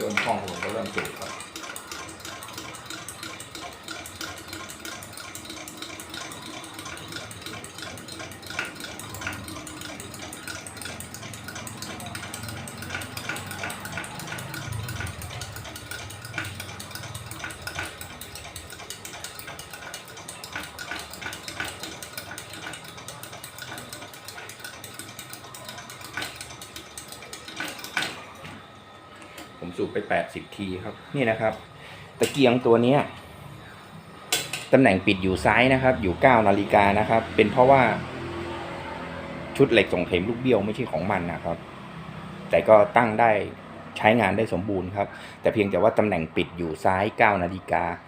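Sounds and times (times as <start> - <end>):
hand air pump strokes: 0.0 - 28.2.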